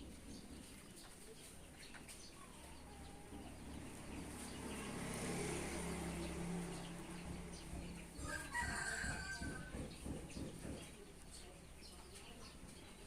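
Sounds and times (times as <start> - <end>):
rooster crowing: 8.2 - 9.8.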